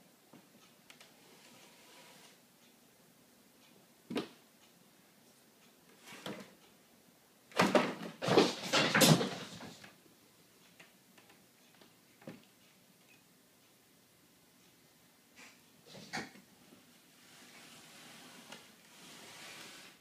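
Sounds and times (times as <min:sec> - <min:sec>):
clattering knocks and bumps: 0:07.6 - 0:09.9.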